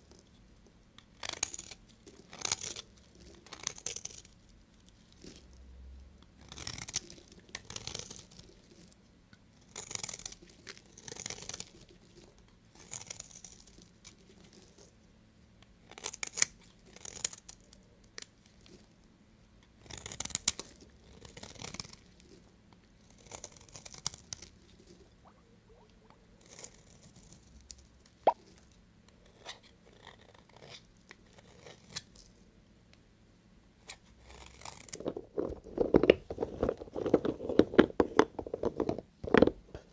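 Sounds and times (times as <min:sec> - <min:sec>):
knife cutting soap: 0:01.0 - 0:04.4, 0:06.3 - 0:08.6, 0:09.6 - 0:11.7, 0:12.3 - 0:14.8, 0:15.6 - 0:17.6, 0:19.6 - 0:24.6, 0:29.2 - 0:32.2, 0:33.8 - 0:39.9.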